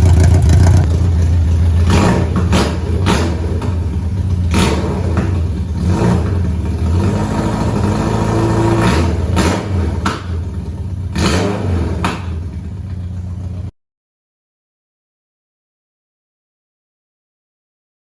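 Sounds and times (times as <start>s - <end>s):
exhaust cracks: 0.0s - 13.7s
motorcycle engine revving: 0.0s - 13.7s.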